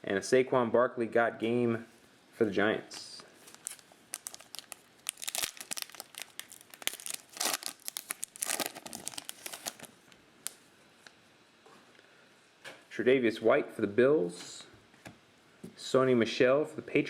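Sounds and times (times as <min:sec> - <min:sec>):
foil wrapper tearing and crinkling: 0:03.4 - 0:10.6.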